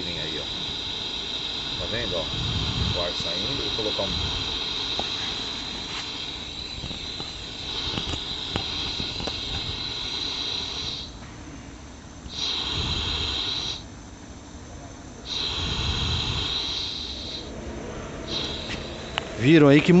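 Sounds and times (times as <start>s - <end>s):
compressed air hissing: 0.0s - 20.0s.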